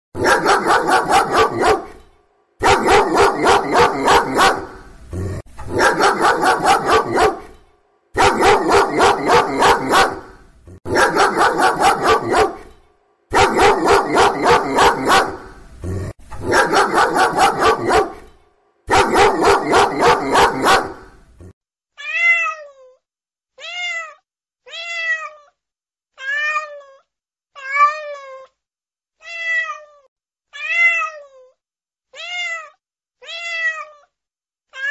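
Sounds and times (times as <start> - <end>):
dog barking: 0.2 - 4.9, 5.6 - 7.6, 8.2 - 15.6, 16.4 - 21.5
cat meowing: 22.0 - 23.0, 23.6 - 25.6, 26.2 - 27.0, 29.2 - 31.5, 32.1 - 34.1.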